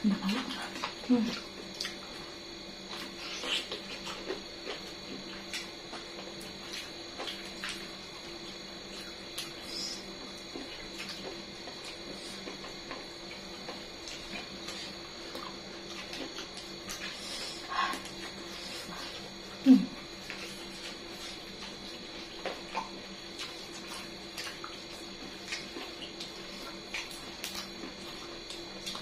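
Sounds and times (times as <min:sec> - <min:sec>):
steady background hum: 0:00.0 - 0:29.0
chewing and food handling clicks: 0:20.2 - 0:29.0.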